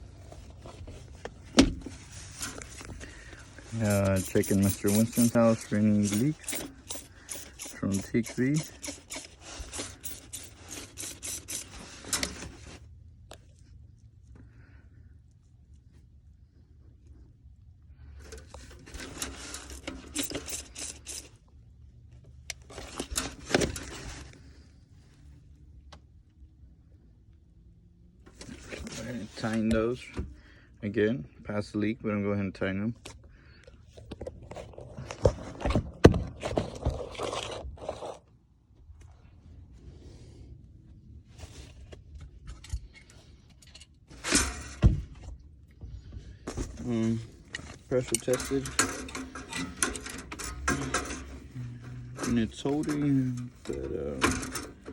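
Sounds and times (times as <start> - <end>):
dull thump: 1.5 - 2.0
metal hand tools clinking: 3.7 - 11.7, 19.0 - 21.3, 48.0 - 51.4.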